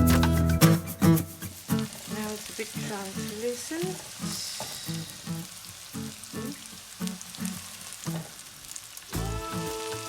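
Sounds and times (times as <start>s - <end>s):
background music: 0.0s - 1.4s, 9.2s - 10.0s
onions sizzling in hot oil: 1.4s - 10.0s.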